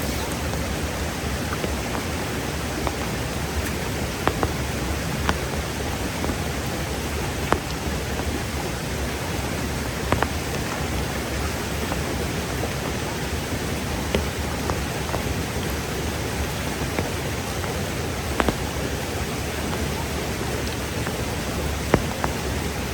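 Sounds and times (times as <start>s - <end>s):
heavy rain: 0.0s - 22.9s
sharp taps: 2.8s - 6.6s, 7.3s - 8.4s, 10.1s - 11.0s, 16.5s - 22.9s.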